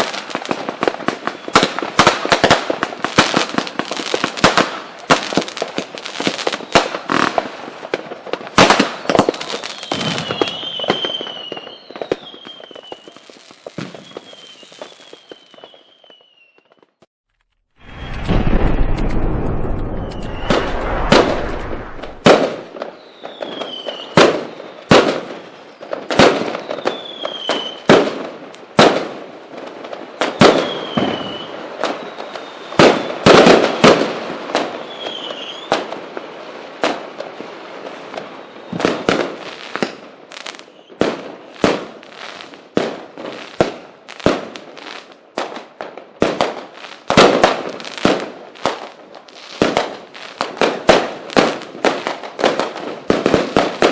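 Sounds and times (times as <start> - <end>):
fireworks bangs and crackles: 0.0 - 17.1, 17.8 - 53.9
falling firework whistles: 1.2 - 7.4, 8.6 - 17.1, 17.8 - 27.9, 30.2 - 36.6, 37.9 - 42.6.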